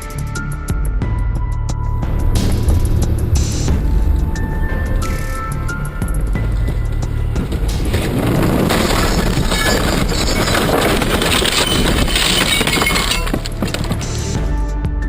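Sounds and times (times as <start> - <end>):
vehicle crash crunching: 2.0 - 14.4
glass shattering: 6.1 - 14.4.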